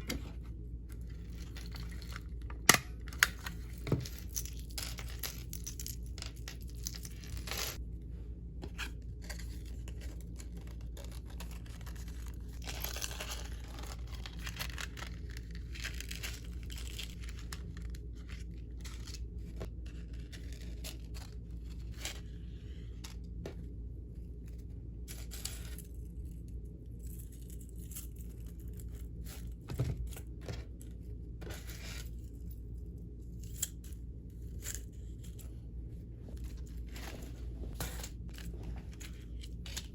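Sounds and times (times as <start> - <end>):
steady low hum: 0.0 - 39.9
packaging tearing and crinkling: 10.2 - 18.0.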